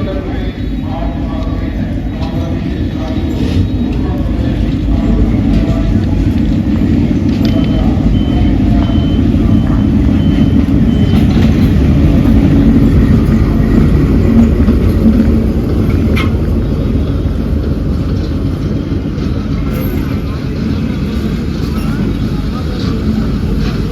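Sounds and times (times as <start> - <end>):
train rumbling on track: 0.0 - 23.9
faint high beep: 7.4 - 11.8.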